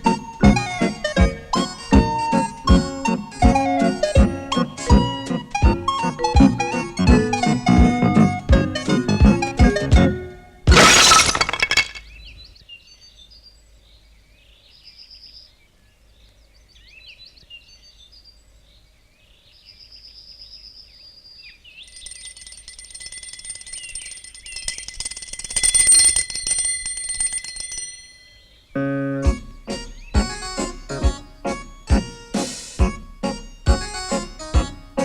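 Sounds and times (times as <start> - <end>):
high-pitched bell-like ringing: 21.9 - 28.6.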